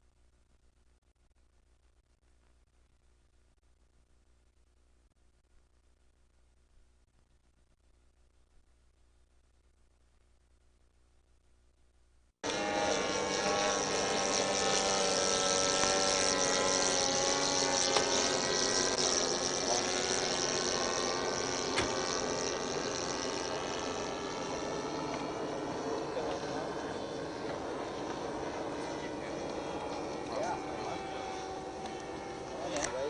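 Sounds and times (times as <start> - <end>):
model airplane engine buzzing: 12.4 - 33.0.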